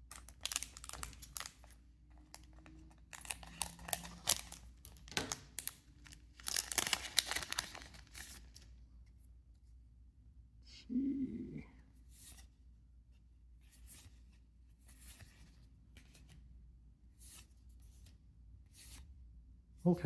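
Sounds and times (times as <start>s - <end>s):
foil wrapper tearing and crinkling: 0.1s - 1.7s, 2.3s - 8.6s.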